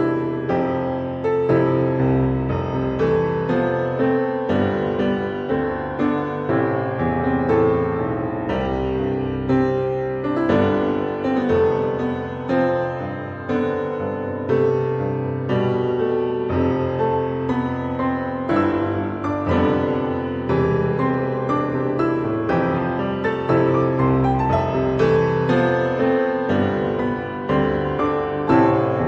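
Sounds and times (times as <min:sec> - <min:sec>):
gentle solo piano melody: 0:00.0 - 0:29.0.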